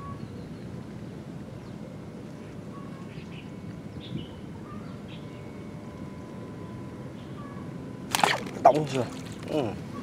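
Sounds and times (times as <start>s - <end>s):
low rushing background noise: 0.0s - 10.0s.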